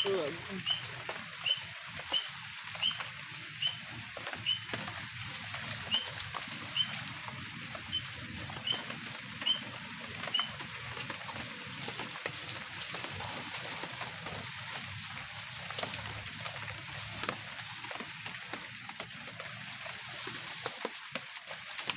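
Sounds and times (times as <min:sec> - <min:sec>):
small animal chirping: 0:00.0 - 0:03.0
light rain pattering: 0:00.0 - 0:21.9.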